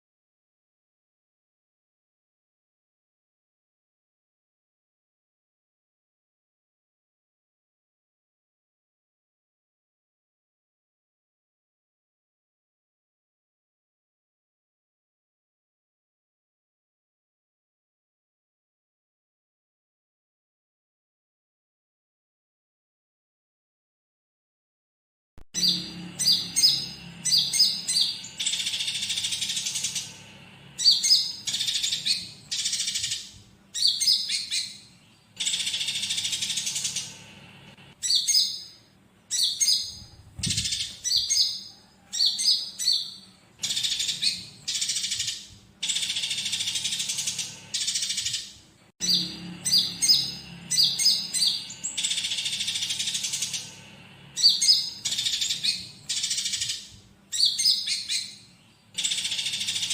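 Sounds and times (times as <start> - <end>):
songbird chirping and chattering: 25.6 - 59.9.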